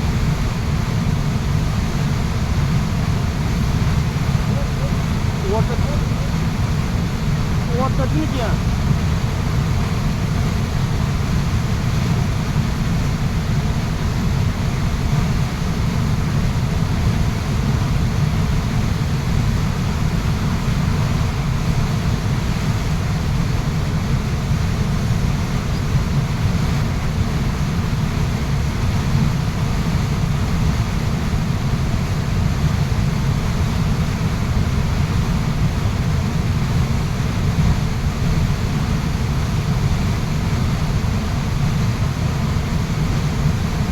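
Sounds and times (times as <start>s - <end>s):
waterfall rushing: 2.1s - 8.8s.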